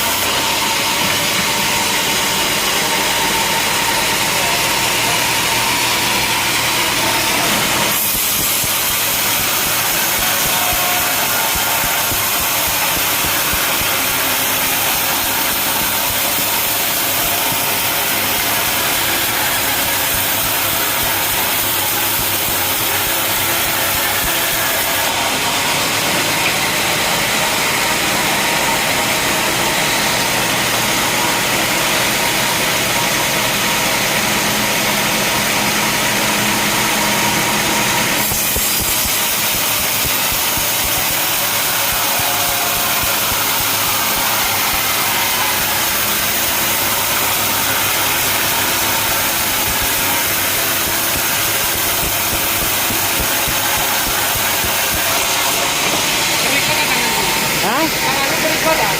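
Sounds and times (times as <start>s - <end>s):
saw blade cutting log: 0.0s - 58.9s
sawmill machinery humming: 0.0s - 58.9s.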